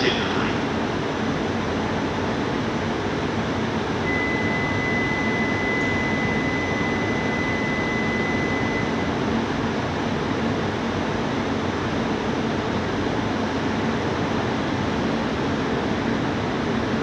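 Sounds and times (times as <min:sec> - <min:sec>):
stationary train hum and hiss: 0:00.0 - 0:17.0
thin high whine: 0:04.0 - 0:09.2.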